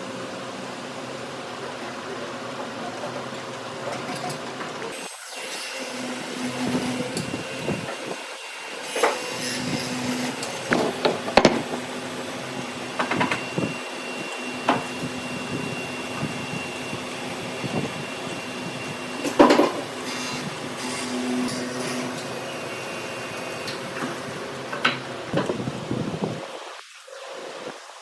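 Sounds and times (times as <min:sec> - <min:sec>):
workshop machine humming: 0:05.4 - 0:26.0
sharp knocks on wood: 0:10.7 - 0:11.9.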